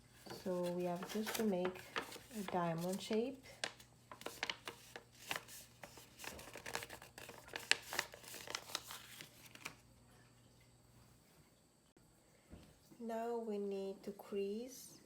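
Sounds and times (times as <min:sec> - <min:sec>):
paper being folded and creased: 0:00.0 - 0:09.8.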